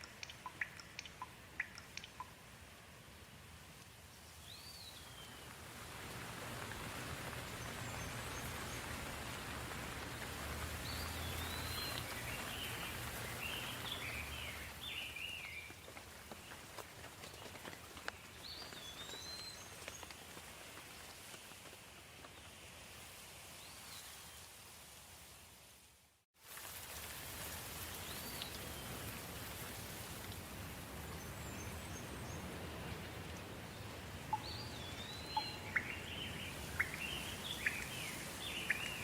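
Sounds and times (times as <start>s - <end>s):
bird chirping: 0.0s - 2.4s, 34.3s - 39.0s
light rain falling: 0.0s - 39.0s.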